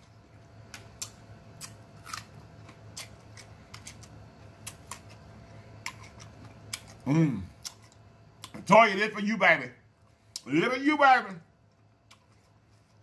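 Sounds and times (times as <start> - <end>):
faint low hum: 0.0 - 13.0
chewing juicy fruit: 0.8 - 8.7.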